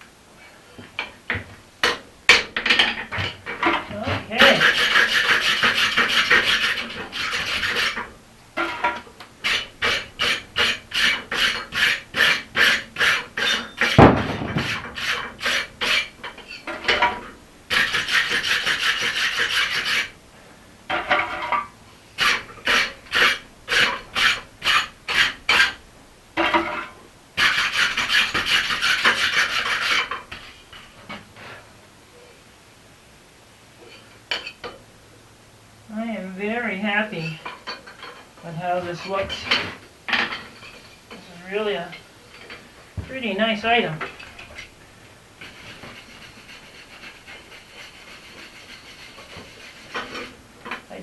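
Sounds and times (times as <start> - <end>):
tool scraping steel axe head: 1.8 - 20.2, 20.9 - 25.8, 26.4 - 30.9, 45.4 - 50.9
sharp metallic knock: 14.0 - 15.1.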